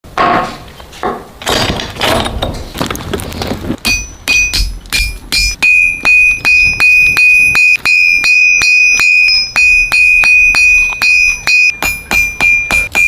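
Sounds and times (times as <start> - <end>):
hammer blows on anvil: 3.8 - 13.0.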